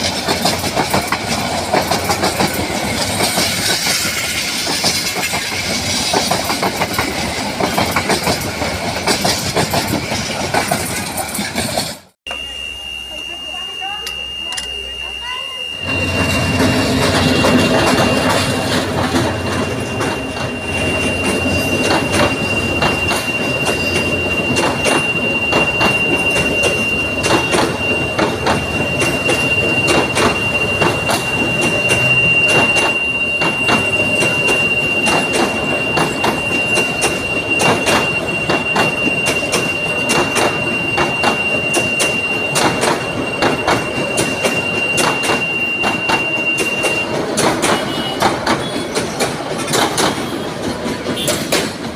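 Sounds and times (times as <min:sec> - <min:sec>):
train wheels rattling on rails: 0:00.0 - 0:12.2, 0:13.6 - 0:51.9
thin high whine: 0:12.3 - 0:16.6.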